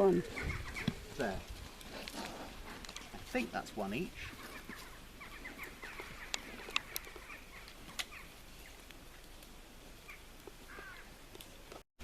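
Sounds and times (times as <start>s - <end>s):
pigs squeaking: 0.0s - 3.4s, 4.2s - 8.3s
pigs chewing: 0.0s - 9.0s.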